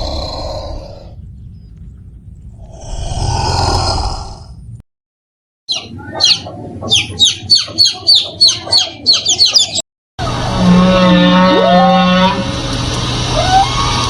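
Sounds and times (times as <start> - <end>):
bird chirping: 5.7 - 9.8
loud steady humming sound: 10.2 - 14.0.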